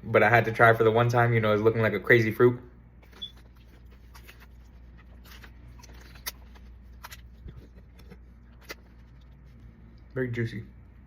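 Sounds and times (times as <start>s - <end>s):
low steady hum: 0.0s - 11.0s
wet eating clicks and smacks: 3.1s - 10.1s.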